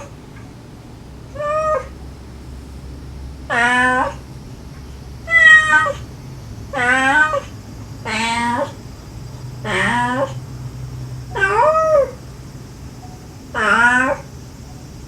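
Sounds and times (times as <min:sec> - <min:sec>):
cat and kittens meowing: 0:01.3 - 0:02.0, 0:03.5 - 0:04.2, 0:05.2 - 0:06.1, 0:06.7 - 0:08.8, 0:09.6 - 0:10.4, 0:11.3 - 0:12.2, 0:13.1 - 0:14.4.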